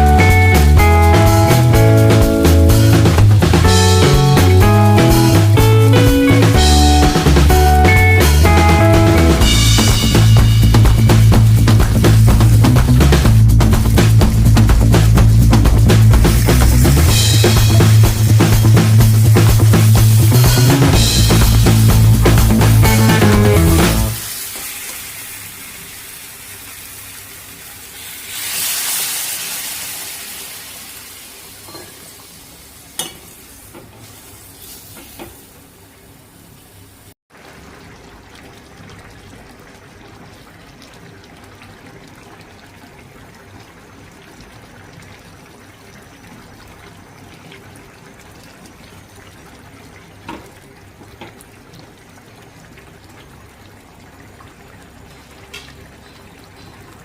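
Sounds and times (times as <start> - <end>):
sizzling in a pan: 9.4 - 37.8.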